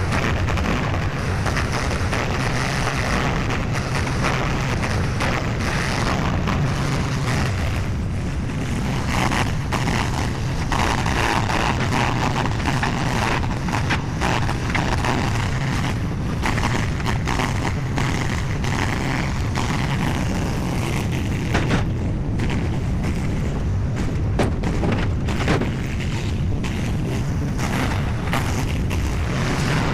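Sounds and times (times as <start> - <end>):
skid steer engine running: 0.0 - 29.9
sharp knocks: 21.5 - 22.6, 24.0 - 25.8.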